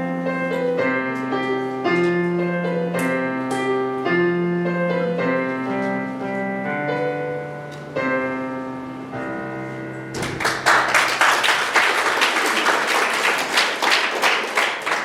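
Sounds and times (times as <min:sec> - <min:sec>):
piano playing: 0:00.0 - 0:15.0
audience applause: 0:10.2 - 0:15.0.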